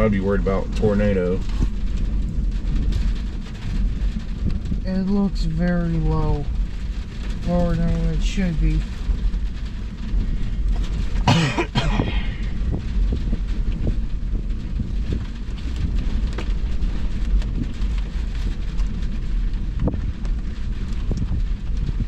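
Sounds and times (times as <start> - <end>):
heavy rain: 0.0 - 22.0
wind buffeting microphone: 0.0 - 22.0
person coughing: 11.3 - 12.4.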